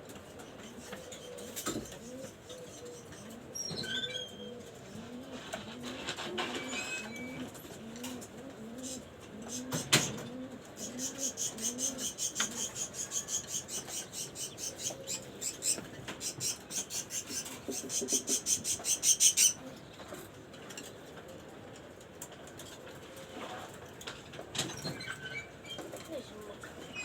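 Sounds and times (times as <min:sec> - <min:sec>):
pigeons cooing: 0:00.4 - 0:19.9
budgerigars chirping: 0:10.9 - 0:19.6.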